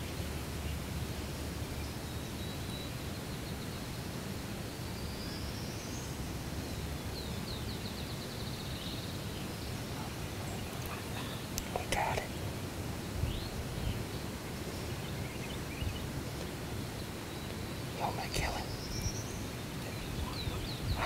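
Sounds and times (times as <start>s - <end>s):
outdoor background noise: 0.0s - 21.0s
songbird calls: 5.0s - 21.0s.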